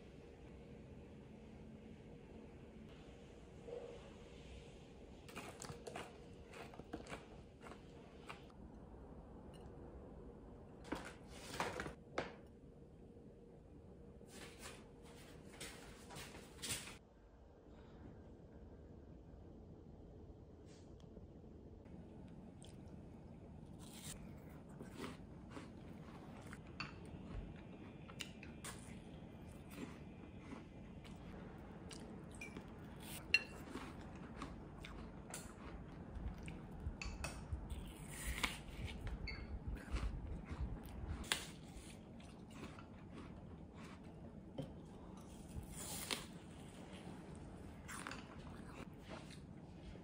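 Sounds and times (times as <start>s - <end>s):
apple crunching: 5.3s - 8.5s.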